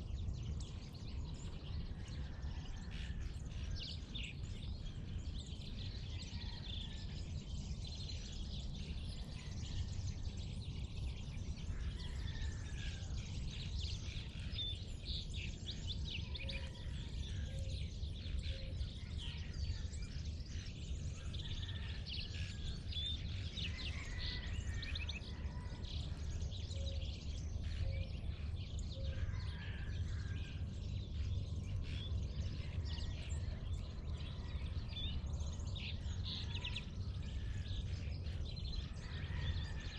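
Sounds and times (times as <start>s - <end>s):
birds chirping and calling: 0.0s - 39.9s
steady low rumble: 30.1s - 39.9s.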